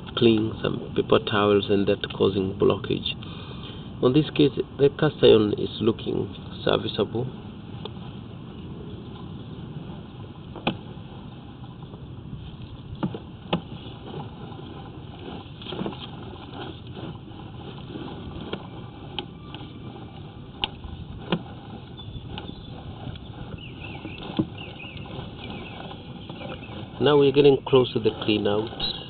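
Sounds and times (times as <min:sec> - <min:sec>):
cable rumbling through drain pipe: 0:04.2 - 0:29.0
sharp clicks and knocks: 0:10.5 - 0:10.8, 0:12.9 - 0:14.3.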